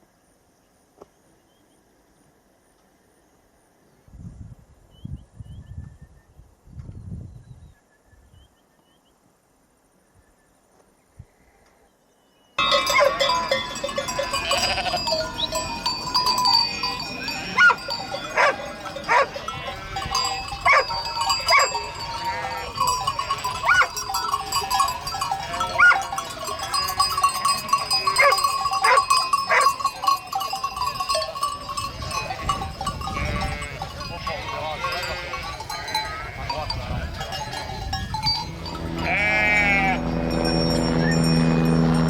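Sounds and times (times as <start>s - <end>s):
goats bleating: 12.6s - 29.9s, 33.0s - 36.8s, 38.6s - 40.3s
livestock bells ringing: 12.6s - 42.0s.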